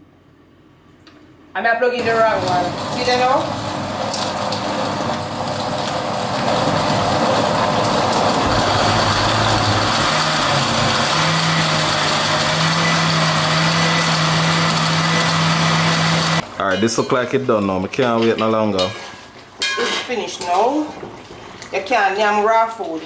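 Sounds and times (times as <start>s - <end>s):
electric blender motor running: 2.0s - 16.4s.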